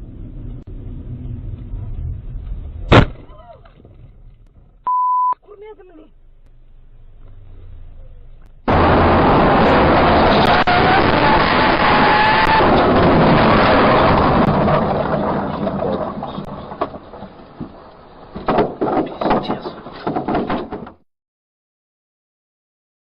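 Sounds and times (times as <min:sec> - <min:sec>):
loud vehicle noise: 0:06.6 - 0:18.5
sharp knocks and rattles: 0:12.6 - 0:21.0.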